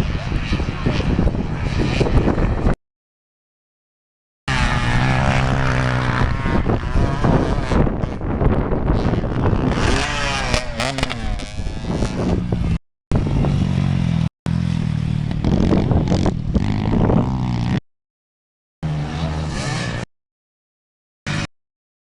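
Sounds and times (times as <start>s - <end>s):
motorcycle engine revving: 4.5s - 17.8s, 18.8s - 20.1s, 21.3s - 21.5s.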